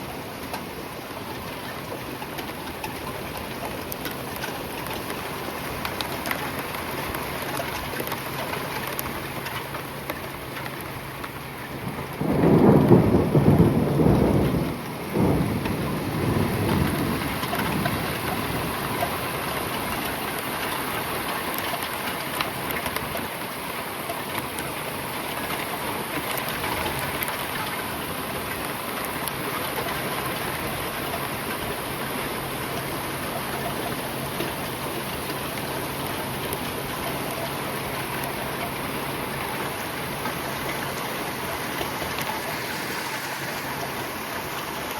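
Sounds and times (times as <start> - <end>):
rain falling: 0.0 - 44.9
thunder rumbling: 11.7 - 20.6.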